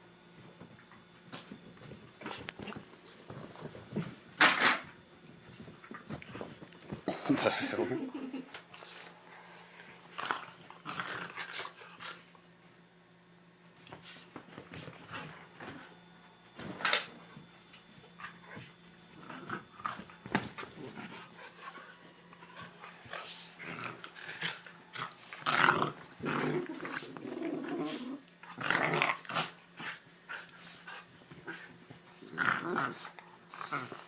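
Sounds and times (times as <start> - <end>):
puppies growling: 7.4 - 12.3, 19.1 - 34.0.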